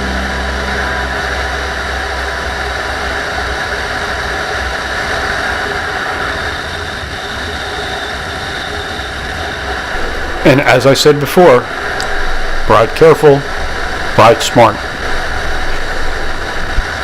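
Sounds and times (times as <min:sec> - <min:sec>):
wind noise rushing: 0:02.3 - 0:17.0
motorcycle engine hum: 0:09.9 - 0:17.0.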